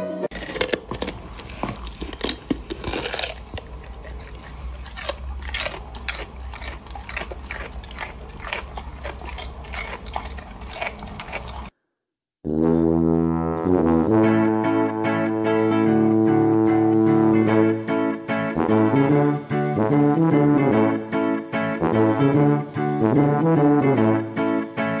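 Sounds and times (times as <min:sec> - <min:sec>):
music: 0:00.0 - 0:00.3, 0:12.5 - 0:25.0
dog chewing a chew toy: 0:00.3 - 0:11.7.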